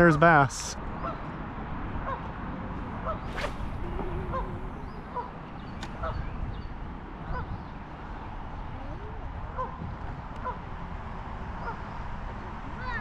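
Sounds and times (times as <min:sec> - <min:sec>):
birds honking calls: 0:03.3 - 0:05.8.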